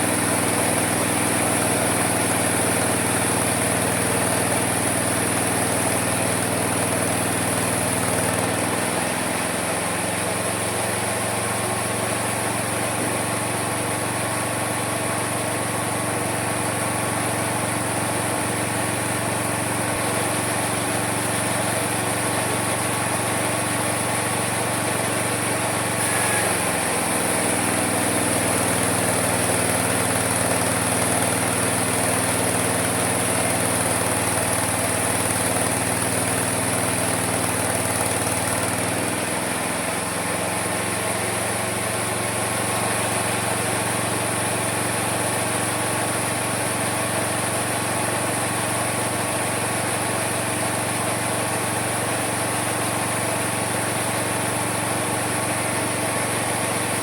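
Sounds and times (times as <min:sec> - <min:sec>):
sawmill running: 0:00.0 - 0:57.0
saw blade cutting wood: 0:25.7 - 0:32.5.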